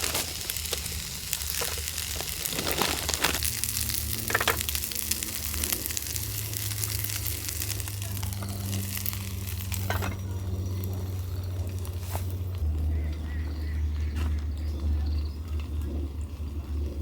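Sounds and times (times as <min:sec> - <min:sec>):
food sizzling in a pan: 0:00.0 - 0:12.3
steady low hum: 0:00.0 - 0:17.0.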